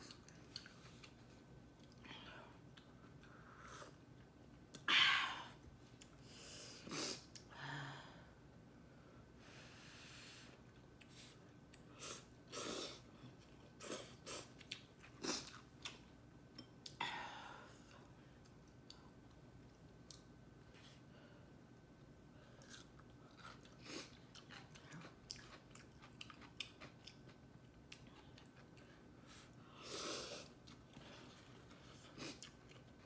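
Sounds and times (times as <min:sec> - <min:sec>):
chewing noises: 0:13.3 - 0:17.0, 0:22.6 - 0:29.1, 0:30.5 - 0:33.0.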